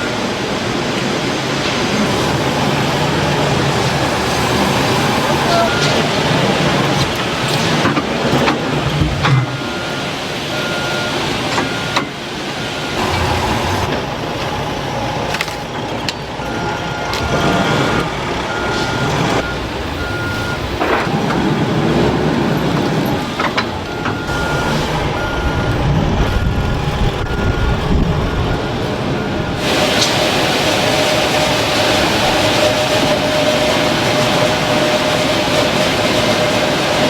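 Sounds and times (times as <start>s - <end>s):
factory machinery running: 0.0s - 37.0s
machinery clanks: 0.9s - 37.0s
electronic alarm beeping: 5.3s - 6.1s, 23.9s - 29.6s.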